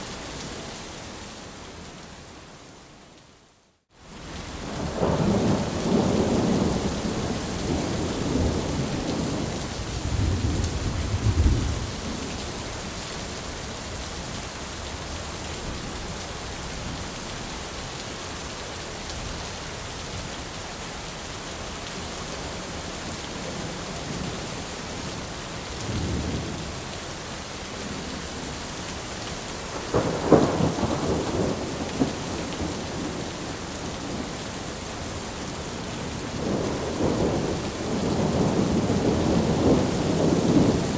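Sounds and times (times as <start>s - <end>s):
steady rain: 0.0s - 40.9s
rolling thunder: 4.8s - 12.3s, 29.7s - 33.2s, 36.3s - 40.9s.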